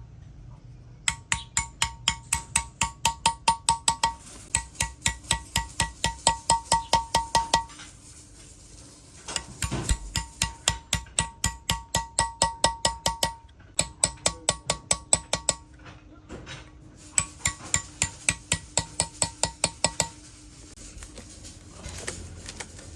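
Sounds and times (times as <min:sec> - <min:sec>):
hammering on metal: 0:01.0 - 0:07.9, 0:09.3 - 0:15.8, 0:17.0 - 0:20.4.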